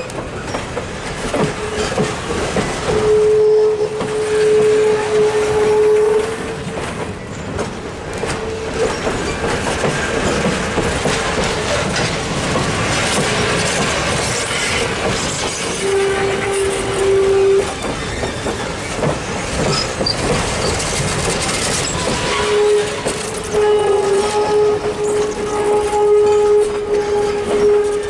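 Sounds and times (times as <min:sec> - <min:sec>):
wheels clattering over rail joints: 0:00.0 - 0:04.9, 0:06.0 - 0:28.0
long steady horn note: 0:03.0 - 0:06.6, 0:15.8 - 0:17.8, 0:22.4 - 0:28.0.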